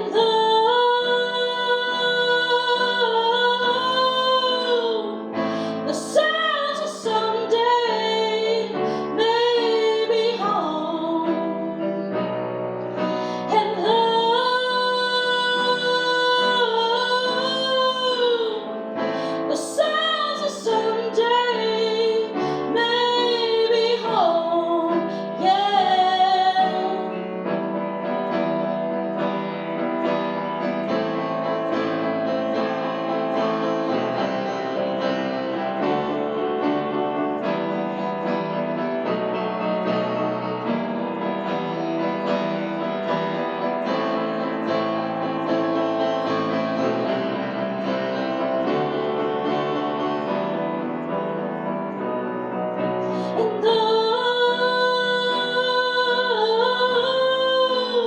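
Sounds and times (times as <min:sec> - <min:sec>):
woman singing with vibrato: 0:00.0 - 0:11.9, 0:13.3 - 0:27.2, 0:53.2 - 0:58.0
piano accompaniment: 0:00.0 - 0:58.0.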